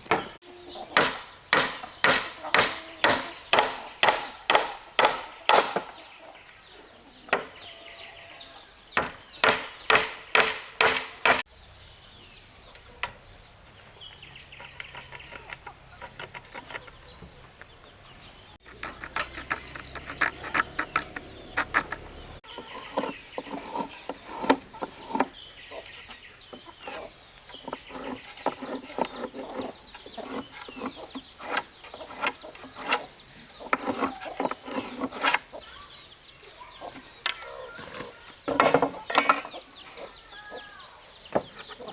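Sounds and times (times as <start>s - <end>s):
chickens clucking: 0.1s - 1.1s, 2.4s - 4.0s, 5.3s - 8.7s, 12.6s - 41.9s
sharp strikes on wood: 1.0s - 6.0s, 9.0s - 11.5s.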